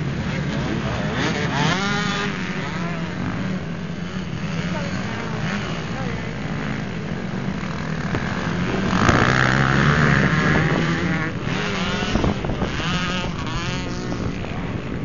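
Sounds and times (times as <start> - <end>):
motocross motorcycles racing: 0.0 - 15.0.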